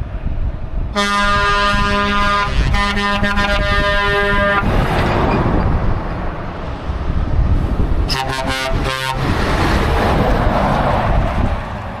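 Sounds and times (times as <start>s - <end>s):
trucks rumbling: 0.0s - 12.0s
truck horn: 1.0s - 4.7s, 8.1s - 9.4s.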